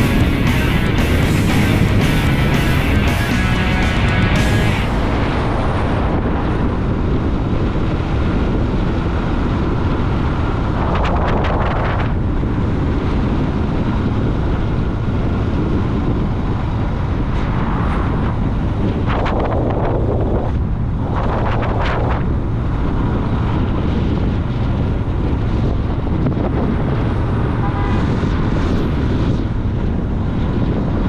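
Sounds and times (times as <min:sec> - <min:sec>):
motorcycle engine running: 0:00.0 - 0:05.8
wind buffeting microphone: 0:04.8 - 0:31.0.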